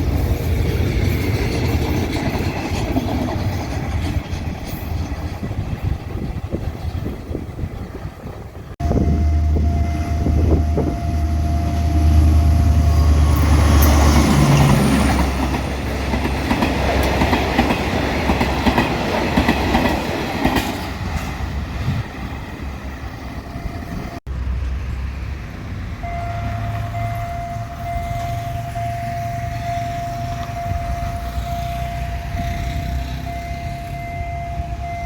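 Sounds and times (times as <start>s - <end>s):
train wheels rattling: 0.0s - 24.2s
diesel locomotive engine hum: 0.0s - 35.0s.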